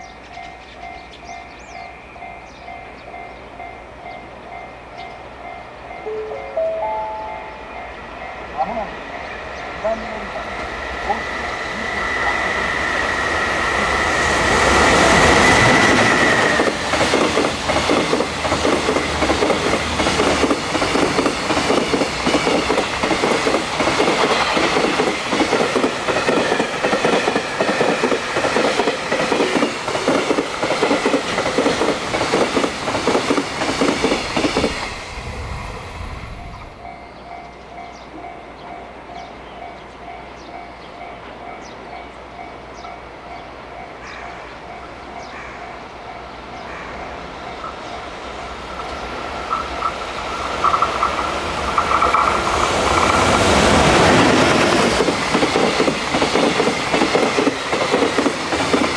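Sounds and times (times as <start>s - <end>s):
train two-tone sound: 0.0s - 58.9s
wheels clacking over rail joints: 10.0s - 35.0s, 46.6s - 58.9s.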